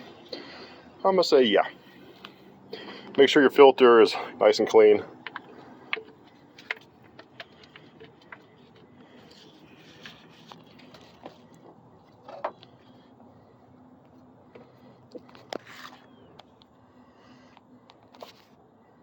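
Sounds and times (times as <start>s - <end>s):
low steady background noise: 0.0s - 19.0s.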